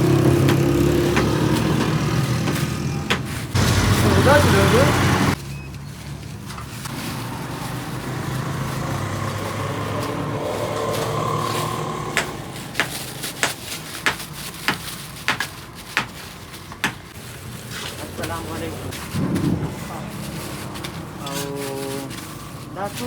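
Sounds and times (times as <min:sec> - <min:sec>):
sharp knocks: 0:00.0 - 0:03.9.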